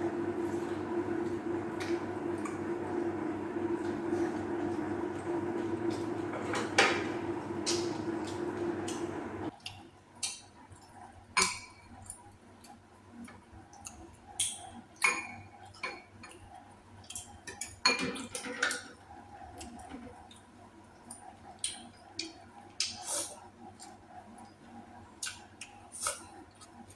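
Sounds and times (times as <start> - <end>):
steady hum: 0.0 - 9.6.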